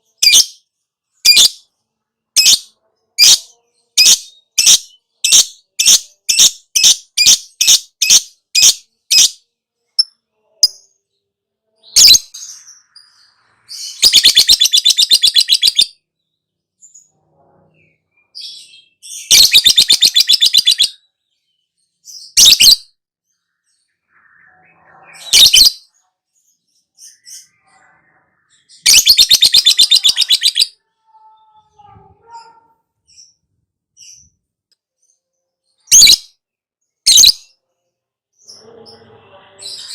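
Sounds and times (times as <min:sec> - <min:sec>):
bird chirping high: 0:00.0 - 0:00.6, 0:01.2 - 0:01.7, 0:02.4 - 0:09.4, 0:11.9 - 0:16.1, 0:18.2 - 0:21.1, 0:22.0 - 0:22.9, 0:23.6 - 0:25.9, 0:27.0 - 0:31.7, 0:35.1 - 0:36.4, 0:37.0 - 0:37.6
shrill bird calls: 0:13.7 - 0:16.0, 0:18.6 - 0:21.0, 0:28.8 - 0:31.3, 0:35.8 - 0:36.4, 0:37.1 - 0:37.5
bird chattering trills: 0:28.9 - 0:30.7.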